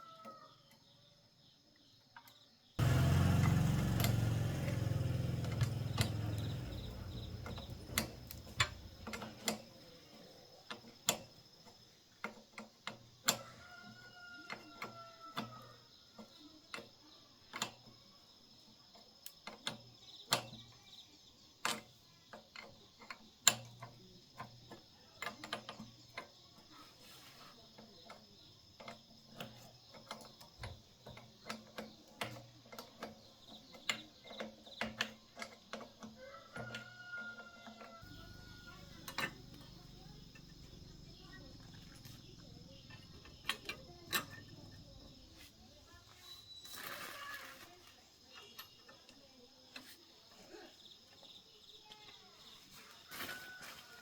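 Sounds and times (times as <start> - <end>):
hand tools clicking on metal: 4.0 - 13.6, 21.6 - 26.6, 27.7 - 45.2
rooster crowing: 13.4 - 15.8, 36.2 - 39.0, 53.1 - 54.0.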